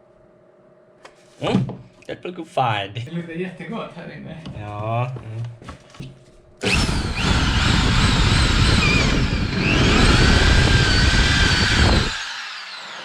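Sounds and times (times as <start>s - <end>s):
power tool cutting wood: 6.6s - 13.0s.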